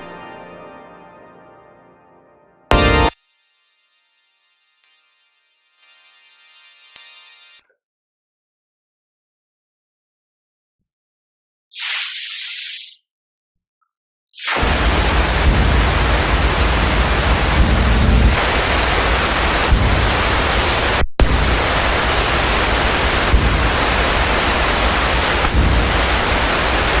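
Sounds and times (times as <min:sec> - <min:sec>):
loud steady white noise hiss: 0:14.6 - 0:27.0.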